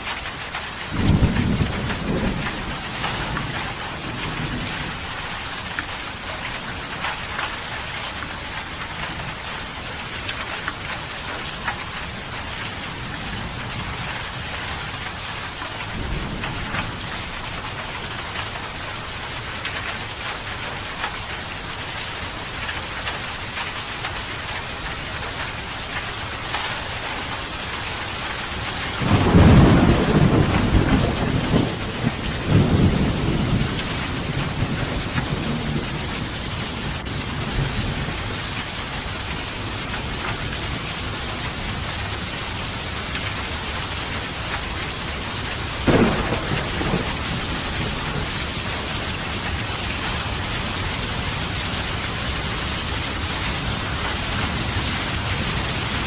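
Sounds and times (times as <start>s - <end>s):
steady rain falling: 0.0s - 56.0s
thunder rumbling: 0.9s - 7.3s, 28.5s - 38.8s, 39.4s - 56.0s.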